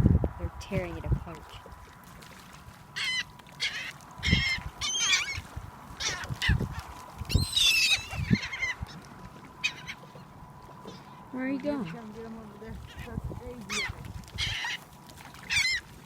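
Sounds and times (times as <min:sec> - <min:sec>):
seagulls squawking: 0:02.9 - 0:11.1, 0:12.7 - 0:15.9.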